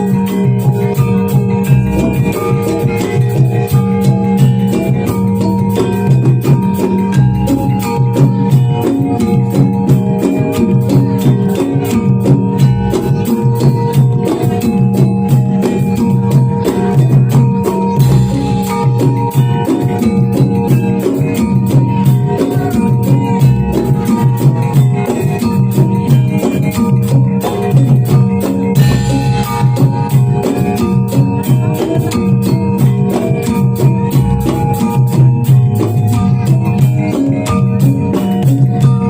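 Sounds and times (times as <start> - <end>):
drums beating fast rhythm: 0.0 - 39.0
gamelan music: 0.0 - 39.0.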